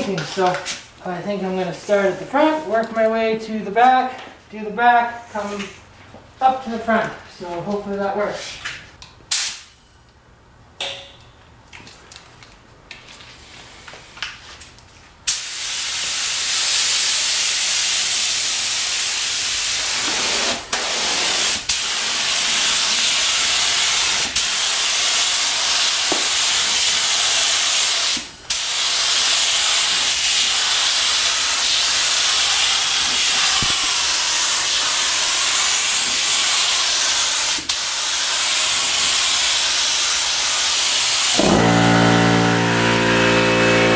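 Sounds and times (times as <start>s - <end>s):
paint spray gun hissing: 15.3s - 43.9s.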